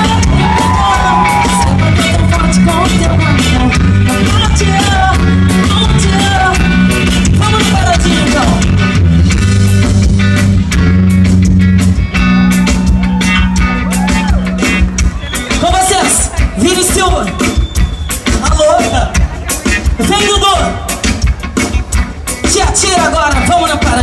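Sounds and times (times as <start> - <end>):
person singing: 0.0 - 6.8
live band playing loudly: 0.0 - 24.0.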